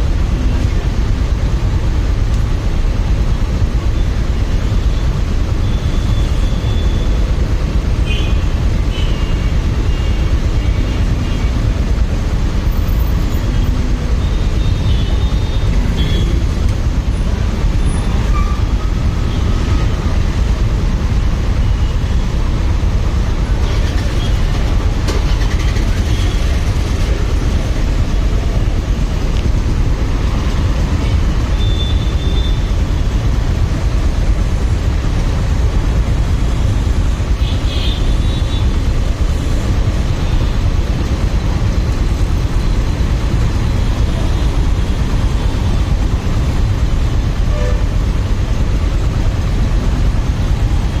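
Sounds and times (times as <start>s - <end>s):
road noise: 0.0s - 51.0s
motorcycle engine: 22.4s - 50.9s.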